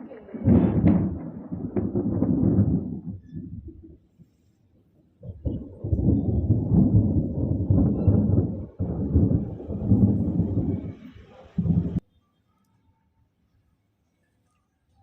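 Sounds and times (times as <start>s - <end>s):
loud thunder burst: 0.0s - 3.8s, 5.2s - 12.0s
thunder rumbling: 0.0s - 4.0s, 5.2s - 12.0s.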